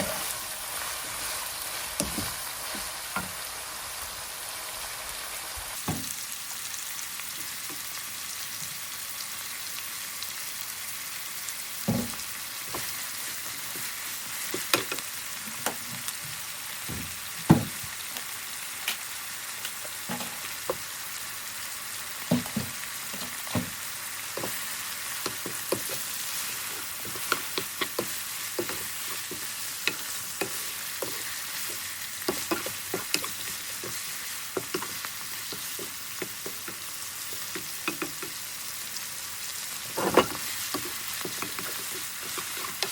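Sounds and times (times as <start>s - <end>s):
food sizzling in a pan: 0.0s - 42.9s
stirring knocks and clicks: 27.0s - 36.8s.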